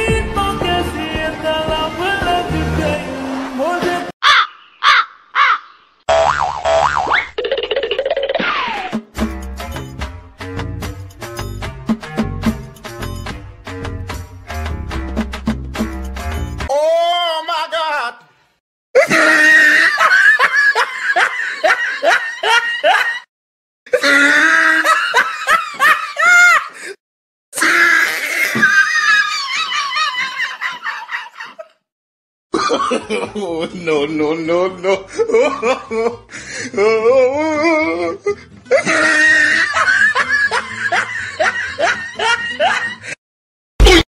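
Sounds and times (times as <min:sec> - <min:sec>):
background music: 0:00.0 - 0:04.1, 0:08.9 - 0:16.7, 0:33.1 - 0:43.0
comic snickering laughs: 0:19.0 - 0:23.3, 0:38.7 - 0:43.2
person laughing: 0:19.0 - 0:23.3, 0:23.9 - 0:26.9, 0:28.4 - 0:31.8, 0:32.6 - 0:33.8, 0:34.7 - 0:43.2.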